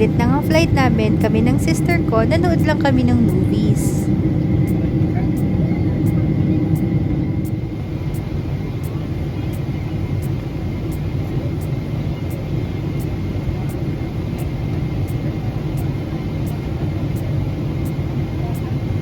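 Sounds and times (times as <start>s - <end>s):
airliner engines and airflow rumble: 0.0s - 19.0s.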